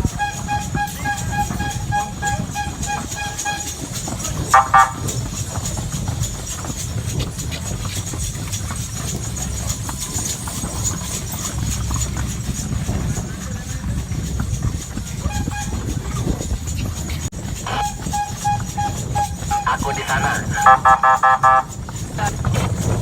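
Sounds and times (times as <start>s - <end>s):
horse hooves clopping: 0.0s - 23.0s
low wind rumble: 0.0s - 23.0s
beeping tone: 4.5s - 5.1s, 17.8s - 21.7s
short loud blasts: 4.5s - 5.1s, 20.5s - 21.7s.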